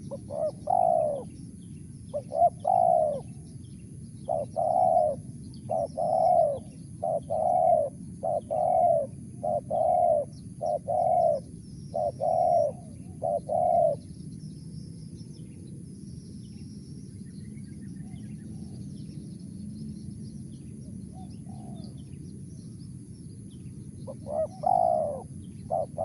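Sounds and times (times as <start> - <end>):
dove cooing: 0.0 - 1.4, 2.1 - 3.5, 4.2 - 14.1, 21.1 - 22.0, 24.0 - 26.0
small birds chirping: 0.0 - 26.0.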